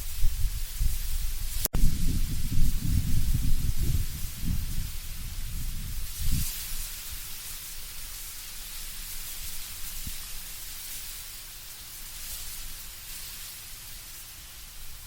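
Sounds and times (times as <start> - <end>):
low gusty wind rumble: 0.0 - 6.5
leaves rustling in wind: 0.0 - 15.0.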